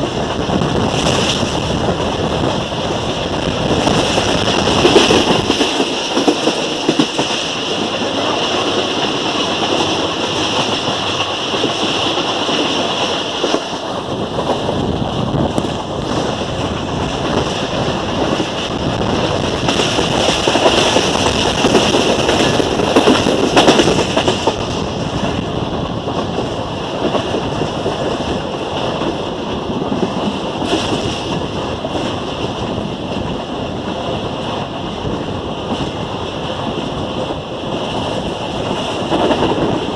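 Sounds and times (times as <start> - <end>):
passenger train wheels clattering: 0.0 - 39.9.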